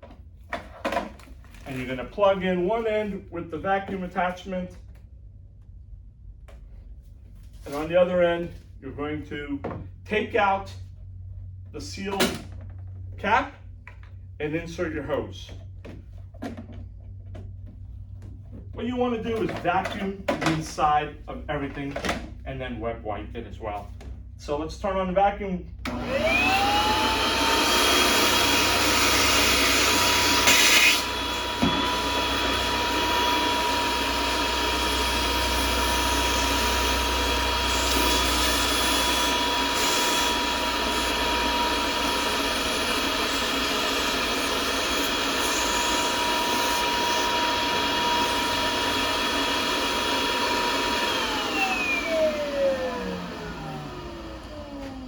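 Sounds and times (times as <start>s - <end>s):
vacuum motor whining: 25.8s - 55.0s.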